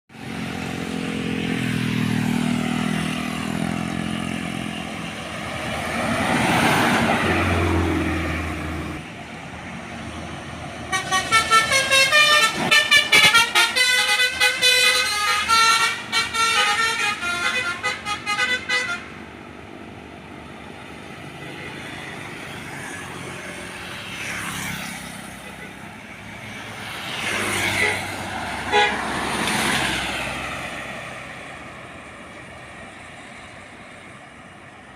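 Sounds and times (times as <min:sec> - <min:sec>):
vehicle engine passing by: 0:00.2 - 0:09.0, 0:20.6 - 0:33.6
musical truck horn: 0:10.9 - 0:19.2, 0:28.7 - 0:29.2.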